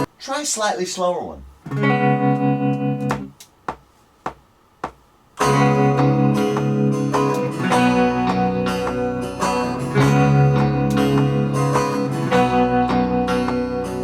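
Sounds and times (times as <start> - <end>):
guitar strumming chords: 1.6 - 3.4, 5.4 - 14.0.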